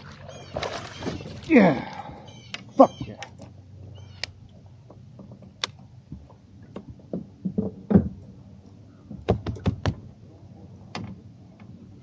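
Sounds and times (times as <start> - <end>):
gear knocking in a kayak: 9.0 - 10.1.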